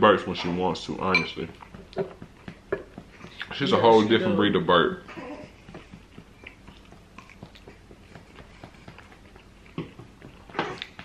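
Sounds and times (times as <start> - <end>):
faint chewing: 5.4 - 11.0.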